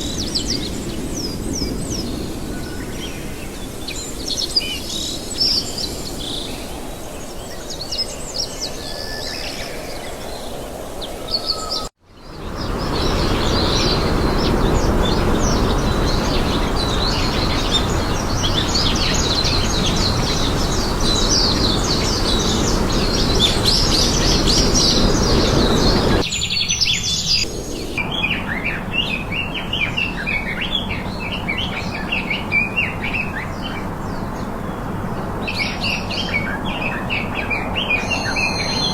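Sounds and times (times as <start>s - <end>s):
small birds chirping: 0.0s - 38.9s
steady rushing noise: 12.1s - 26.3s.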